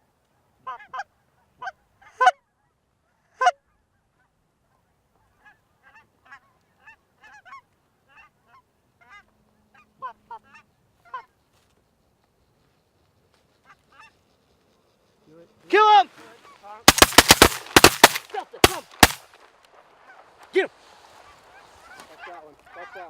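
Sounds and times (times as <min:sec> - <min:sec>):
goose honking and clucking: 0:21.8 - 0:23.0.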